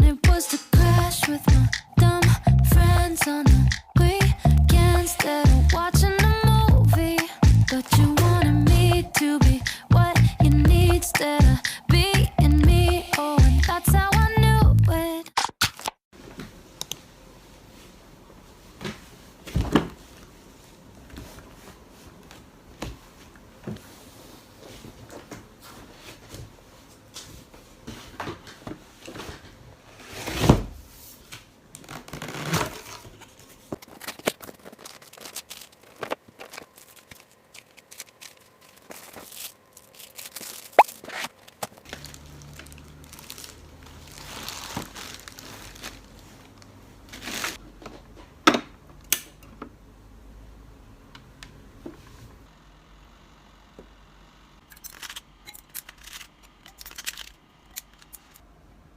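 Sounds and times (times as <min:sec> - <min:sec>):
paper and plastic crinkling: 0:31.8 - 0:47.6, 0:54.8 - 0:58.4.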